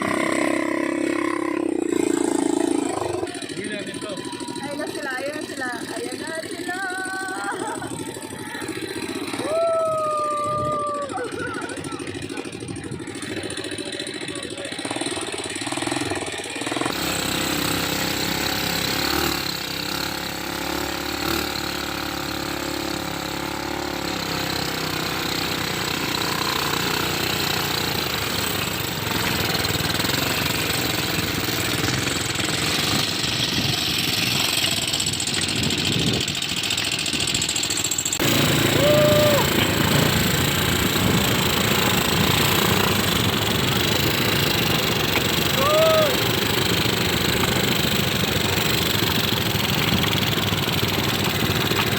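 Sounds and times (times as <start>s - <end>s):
atv engine running: 0.0s - 51.9s.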